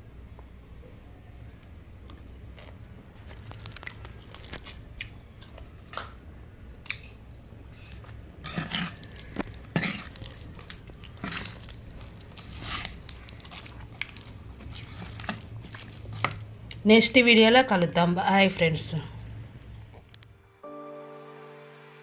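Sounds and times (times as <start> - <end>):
person chewing crunchy food: 6.8 - 16.8.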